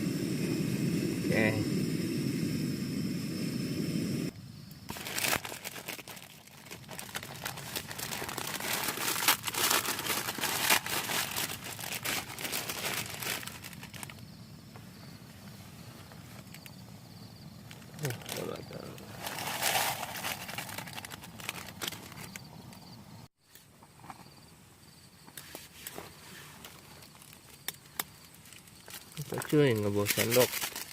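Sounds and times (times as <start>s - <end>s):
low rushing noise: 0.0s - 4.3s
plastic crinkling and rustling: 4.9s - 14.2s, 17.6s - 22.5s, 25.6s - 30.9s.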